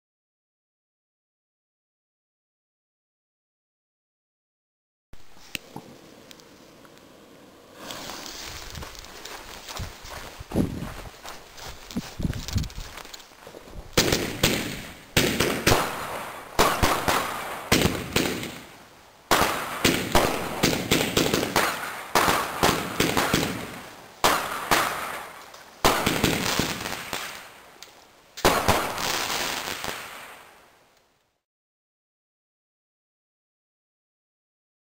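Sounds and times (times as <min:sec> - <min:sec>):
firework crackling: 0:07.6 - 0:10.2, 0:11.2 - 0:30.8
firework reports: 0:07.7 - 0:09.1, 0:14.0 - 0:27.6.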